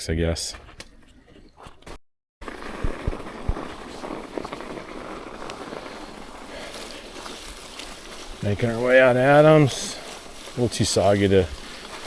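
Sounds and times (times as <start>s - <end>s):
wind: 0.0s - 12.0s
bike tyre noise: 2.4s - 12.0s.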